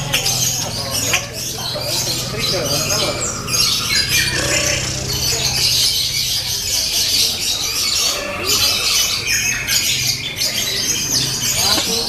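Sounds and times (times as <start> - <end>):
lovebirds chattering trill: 0.0 - 12.0.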